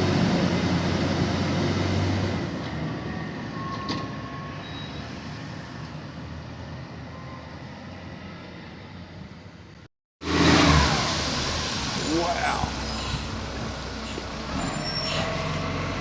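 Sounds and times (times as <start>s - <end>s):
garbage truck driving off: 0.0s - 5.8s, 10.2s - 16.0s.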